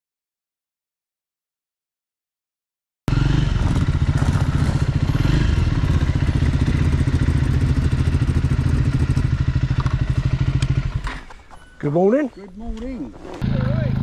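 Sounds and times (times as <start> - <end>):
motorcycle engine running: 3.1 - 11.1, 13.4 - 14.0.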